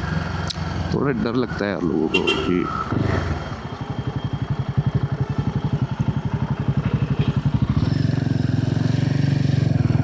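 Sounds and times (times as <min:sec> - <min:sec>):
motorcycle engine running: 0:02.1 - 0:10.0.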